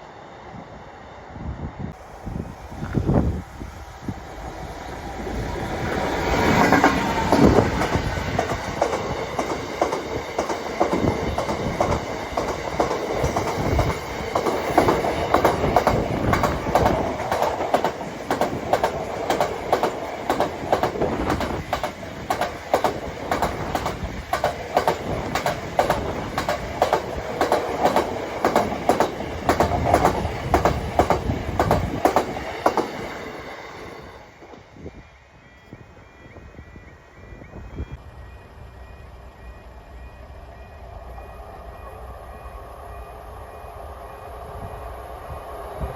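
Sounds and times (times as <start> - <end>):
locomotive rushing past: 0.0 - 36.0
wheel clacks over rail joints: 6.6 - 33.1.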